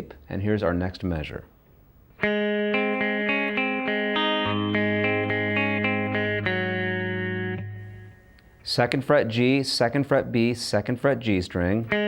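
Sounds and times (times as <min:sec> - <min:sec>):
guitar picking arpeggio: 0:02.2 - 0:08.6.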